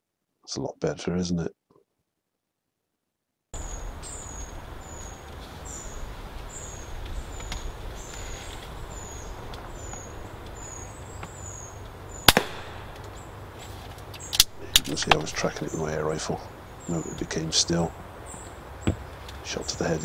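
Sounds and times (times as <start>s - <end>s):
low background noise: 3.6s - 20.0s
sharp crack: 12.2s - 13.4s, 14.0s - 15.8s.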